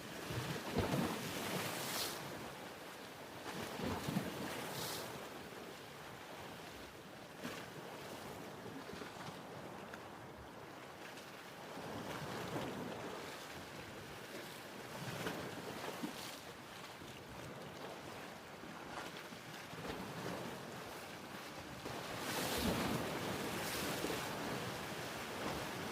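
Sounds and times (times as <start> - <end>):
ocean waves washing in: 22.0 - 25.9.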